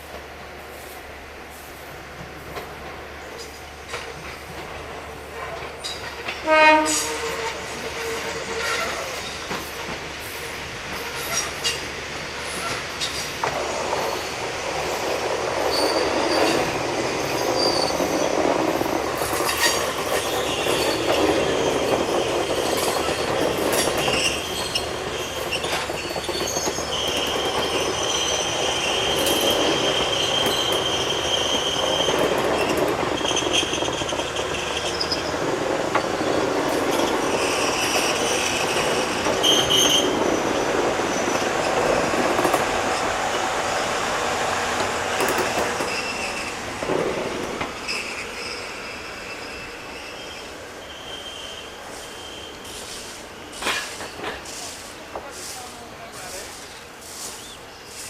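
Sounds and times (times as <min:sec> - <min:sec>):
train rumble: 0:00.0 - 0:50.9, 0:51.6 - 0:58.0
high-pitched wheel squeal: 0:47.8 - 0:52.8.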